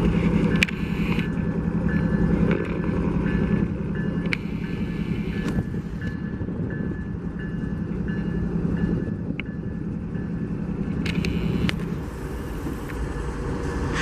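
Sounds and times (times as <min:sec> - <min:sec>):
locomotive engine rumble: 0:00.0 - 0:14.0
sharp clicks: 0:11.0 - 0:11.9.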